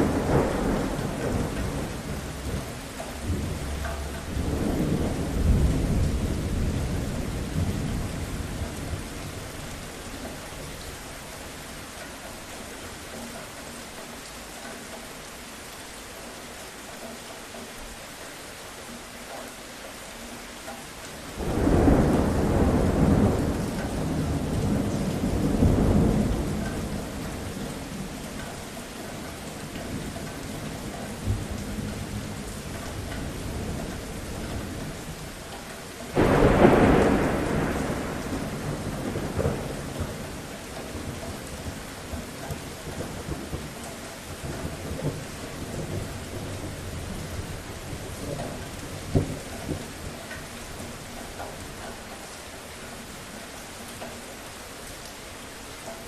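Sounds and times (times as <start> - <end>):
thunder rolling: 0.0 - 9.5, 21.4 - 28.2, 36.1 - 43.7
steady rain: 0.0 - 56.0.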